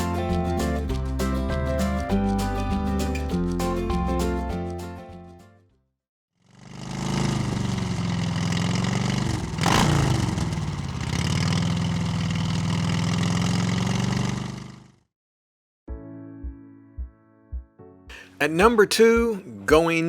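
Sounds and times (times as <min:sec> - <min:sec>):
motorcycle engine running: 0:06.5 - 0:15.0.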